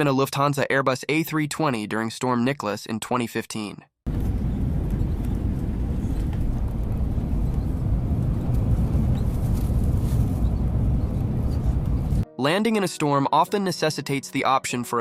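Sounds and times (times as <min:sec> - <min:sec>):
low rumble of landing airplane: 0:04.1 - 0:12.2.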